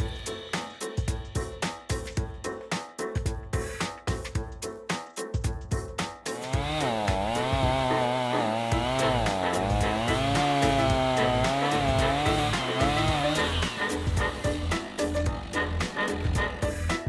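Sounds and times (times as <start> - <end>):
background music: 0.0 - 17.0
chainsaw cutting wood: 6.4 - 16.6.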